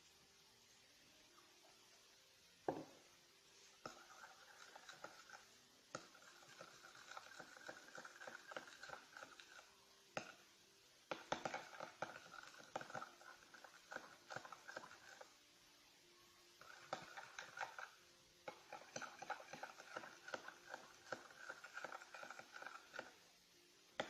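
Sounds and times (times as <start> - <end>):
stirring glue in a bowl: 3.6 - 15.4, 16.5 - 23.3.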